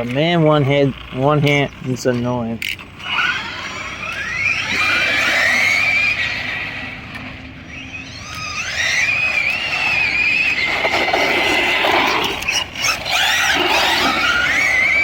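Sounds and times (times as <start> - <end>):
rc car motors whining: 0.0 - 15.0
tyres scrubbing and clattering: 10.6 - 14.9.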